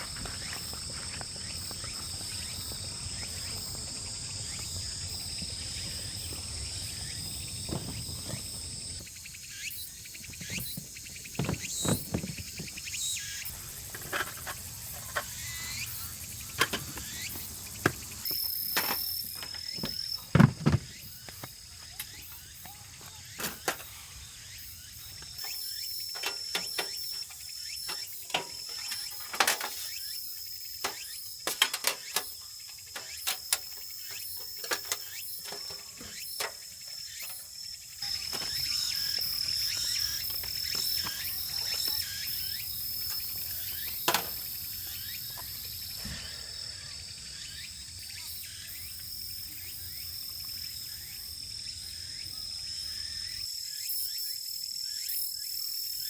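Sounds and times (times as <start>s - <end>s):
insects trilling: 0.0s - 56.0s
sharp clicks and knocks: 10.4s - 12.8s, 16.5s - 22.1s, 25.3s - 30.0s, 30.8s - 37.4s, 43.1s - 44.6s.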